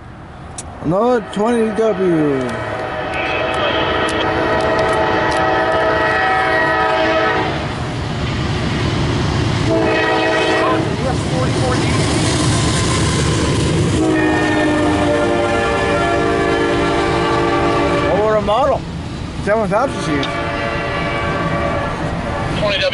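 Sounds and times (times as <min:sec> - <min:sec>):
train rumble: 0:00.0 - 0:22.9
locomotive air horn blasts: 0:01.0 - 0:07.7, 0:09.7 - 0:11.0, 0:14.0 - 0:18.4, 0:19.9 - 0:22.8.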